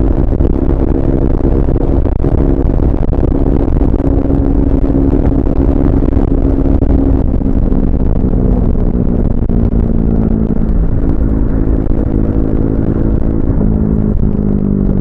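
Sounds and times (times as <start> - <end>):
heavy low rumble: 0.0 - 15.0
motorcycle engine at high revs: 0.0 - 15.0.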